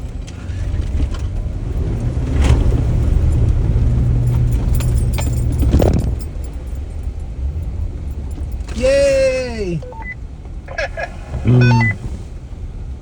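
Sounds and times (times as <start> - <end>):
off-road engine under load: 0.0 - 13.0.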